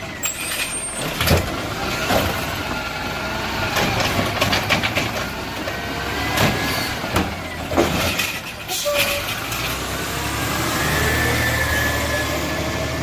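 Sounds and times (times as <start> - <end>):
garbage truck engine running: 0.0 - 13.0
sharp knocks and clanks: 3.7 - 8.7.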